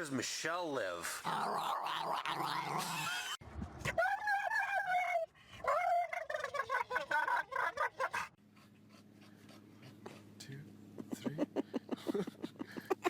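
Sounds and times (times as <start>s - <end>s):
animal calling: 1.1s - 10.2s.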